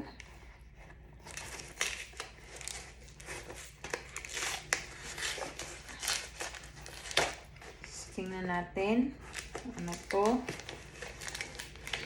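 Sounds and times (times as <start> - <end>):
packaging crinkling and tearing: 1.2 - 7.7, 9.2 - 12.0.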